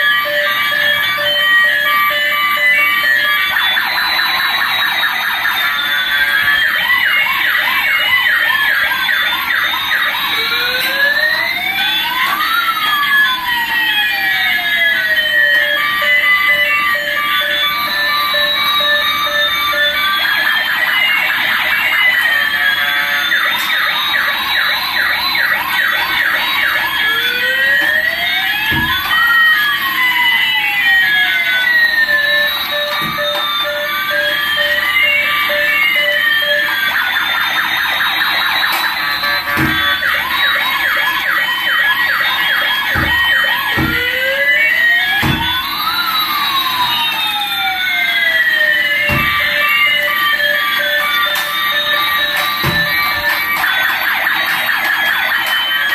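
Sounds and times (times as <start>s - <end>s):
toy siren wailing and yelping: 0.0s - 55.9s
toy siren fast yelp: 15.0s - 27.8s, 45.2s - 55.9s.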